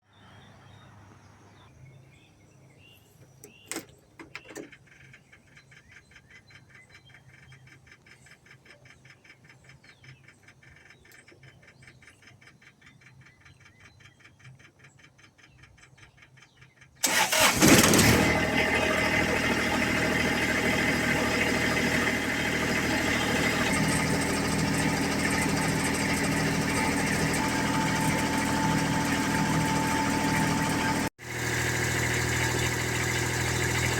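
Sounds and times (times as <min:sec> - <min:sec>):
light fast ticking: 0:04.7 - 0:17.0
lawn mower engine: 0:17.0 - 0:33.9.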